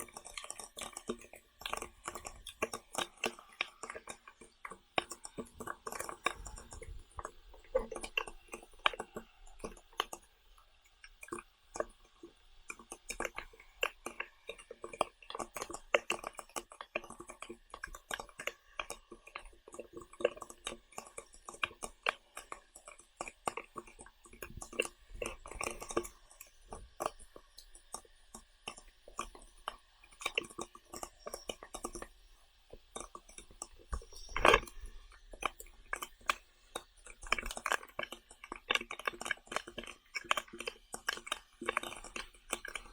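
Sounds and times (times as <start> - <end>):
person chewing and smacking: 0.0 - 10.3, 10.9 - 42.9.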